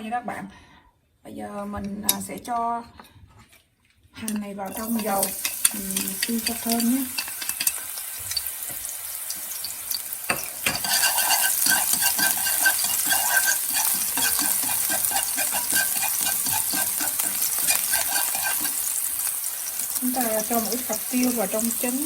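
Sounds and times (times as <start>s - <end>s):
scallions sizzling in hot oil: 4.6s - 22.0s.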